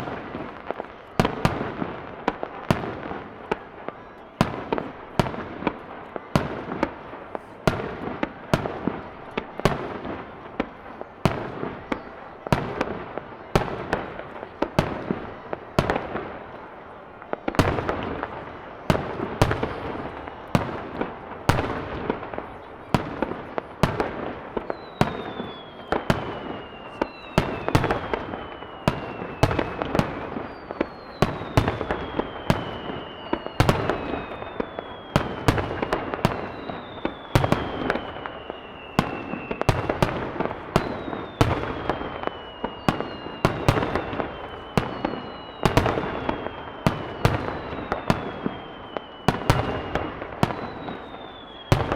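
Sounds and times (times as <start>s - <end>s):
fireworks bursting: 0.0s - 51.9s
fireworks crackling: 0.0s - 51.9s
falling whistles: 24.7s - 35.5s, 36.3s - 39.8s, 40.8s - 51.9s.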